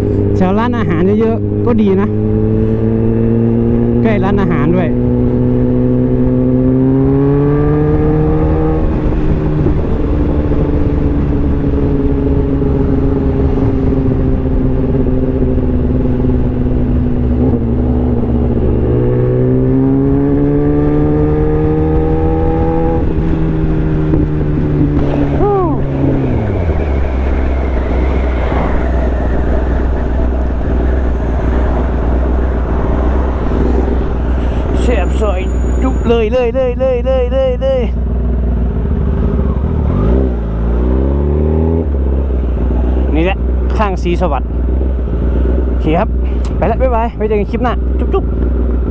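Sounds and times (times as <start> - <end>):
motorcycle engine: 0.0 - 48.9.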